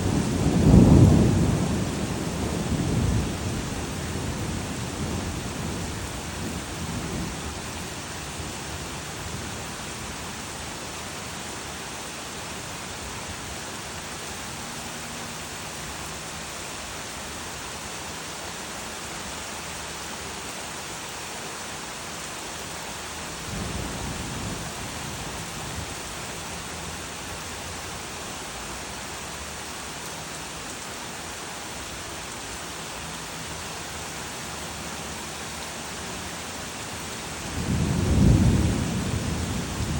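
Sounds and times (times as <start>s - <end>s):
thunder rumbling: 0.0s - 7.4s, 37.4s - 39.9s
steady rain: 0.0s - 39.9s.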